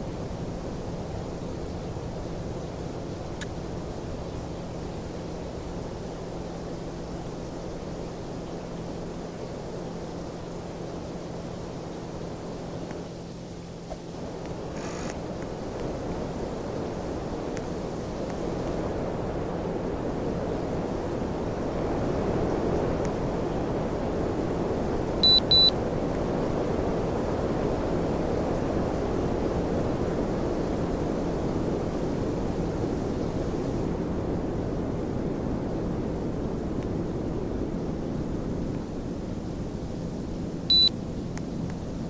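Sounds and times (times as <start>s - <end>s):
air conditioner airflow: 0.0s - 42.0s
faint hum: 24.0s - 25.8s, 39.2s - 42.0s
short high-pitched beeps: 25.2s - 25.7s, 40.7s - 40.9s.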